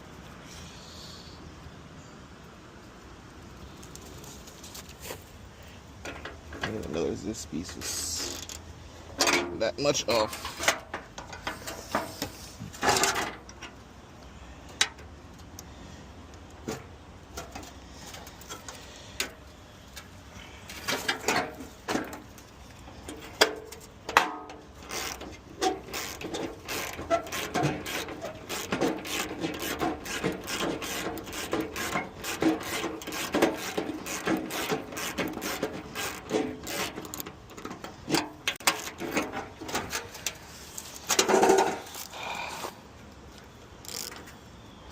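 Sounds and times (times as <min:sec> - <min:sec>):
rapid clicking and rattling: 0:24.8 - 0:40.3.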